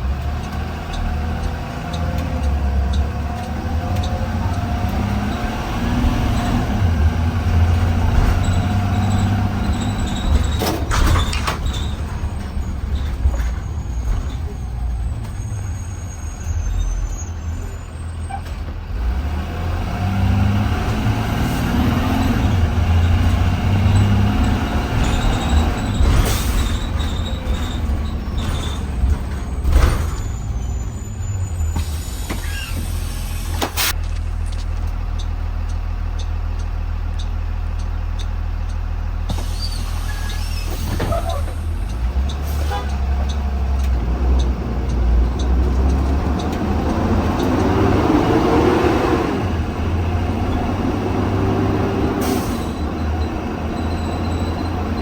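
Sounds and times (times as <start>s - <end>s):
bus engine rumbling: 0.0s - 55.0s
air brake hisses: 31.3s - 34.0s, 39.3s - 41.8s, 52.2s - 52.8s.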